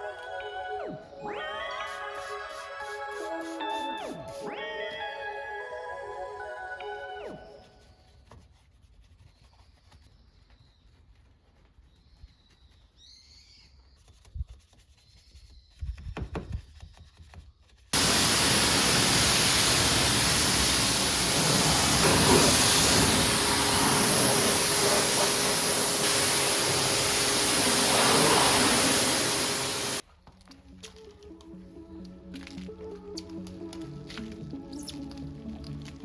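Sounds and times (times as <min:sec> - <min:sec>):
pressure washer spraying water: 0:18.0 - 0:30.0.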